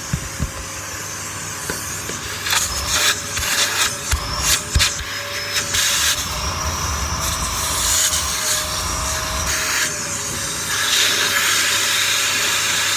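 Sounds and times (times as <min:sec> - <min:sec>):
vacuum cleaner running: 0:00.0 - 0:12.9
vacuum nozzle bumping on shoes: 0:02.1 - 0:08.2.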